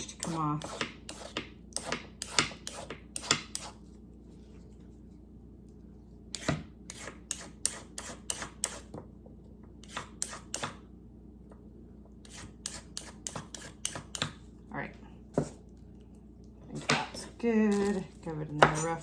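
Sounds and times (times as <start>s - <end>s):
knife chopping on cutting board: 0.2s - 3.8s, 6.4s - 9.0s, 12.3s - 14.4s.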